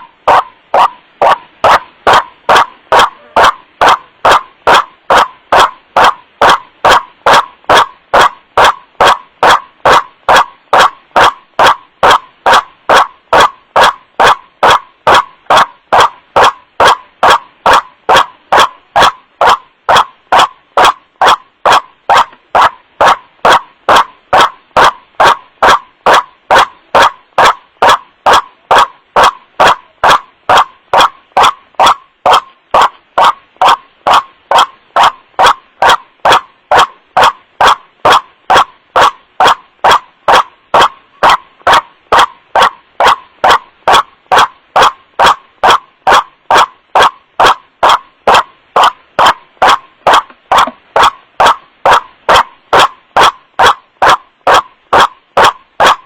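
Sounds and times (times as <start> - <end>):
waterhen harsh calls: 0.3 - 4.8.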